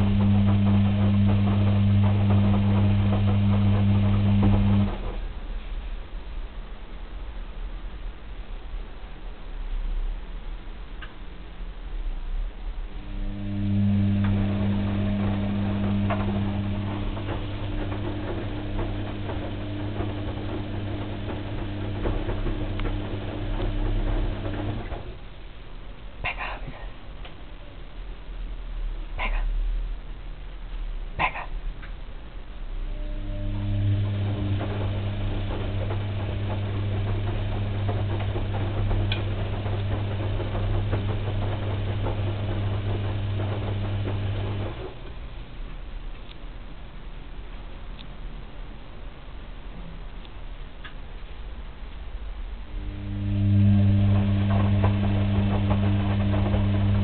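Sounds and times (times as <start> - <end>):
clicks and knocks from turning drum: 0.0 - 5.3, 14.1 - 25.2, 33.7 - 45.2
washing machine motor hum: 0.0 - 26.0, 32.5 - 57.0.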